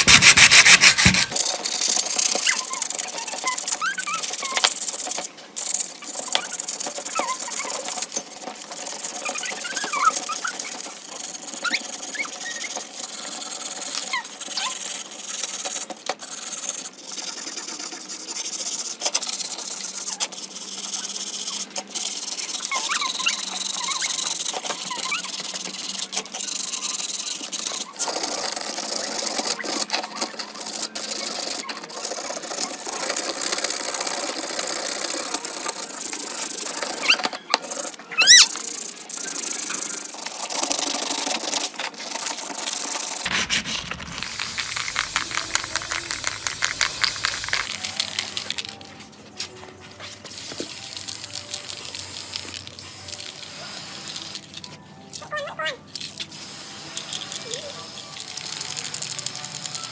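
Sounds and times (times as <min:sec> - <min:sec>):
rubbing and scraping: 0:00.0 - 0:02.5, 0:43.1 - 0:49.1.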